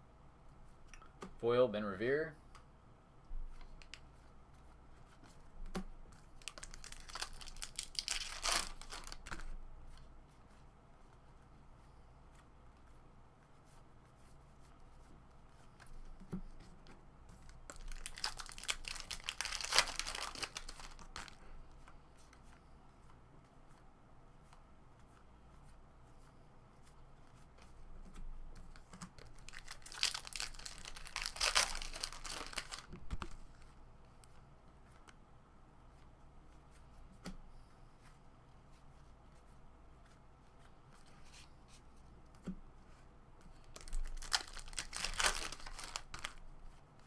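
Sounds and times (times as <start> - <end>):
wrappers tearing and crinkling: 6.4 - 9.4, 17.6 - 21.4, 29.2 - 32.9, 43.7 - 46.4.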